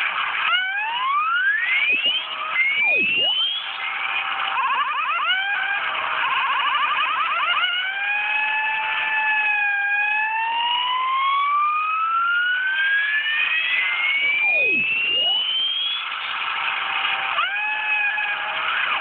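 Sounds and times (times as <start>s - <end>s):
wavering whistling tone: 0.9s - 9.9s, 10.7s - 19.0s
tone sweeping down: 1.3s - 5.6s, 11.8s - 16.2s
short rising radio chirps: 1.4s - 5.0s, 12.6s - 18.5s.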